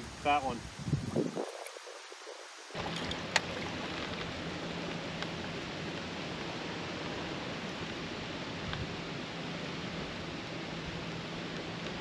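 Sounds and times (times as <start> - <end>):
wind rushing: 0.0 - 2.8
river water flowing: 0.0 - 11.5.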